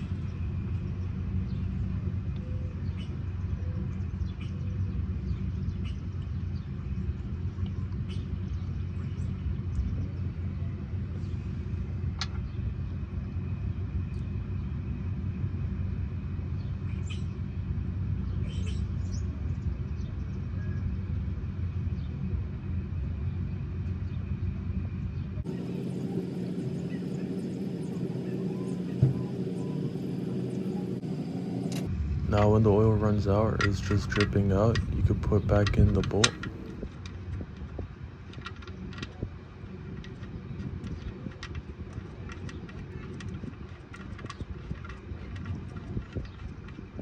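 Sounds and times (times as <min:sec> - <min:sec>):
steady low rumble: 0:00.0 - 0:47.0
faint high chirps: 0:25.5 - 0:31.8.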